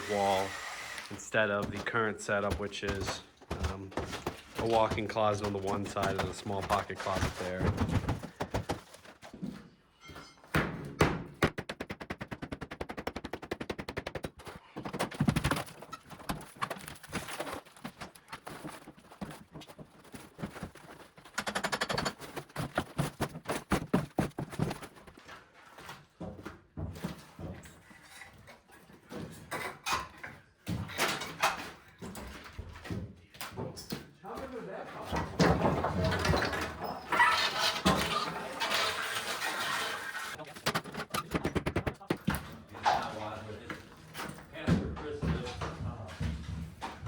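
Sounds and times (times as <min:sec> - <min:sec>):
drywall knocks and thuds: 0:01.3 - 0:09.6, 0:10.5 - 0:25.2, 0:30.6 - 0:38.2, 0:40.3 - 0:42.7.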